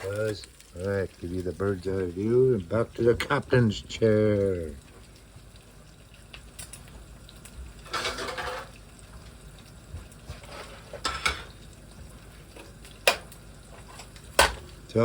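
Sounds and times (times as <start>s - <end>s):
pan scraping rattle: 7.9s - 8.7s.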